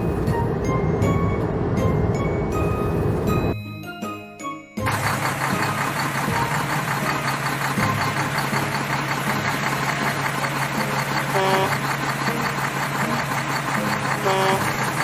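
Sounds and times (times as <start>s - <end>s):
car engine idling: 4.8s - 15.0s.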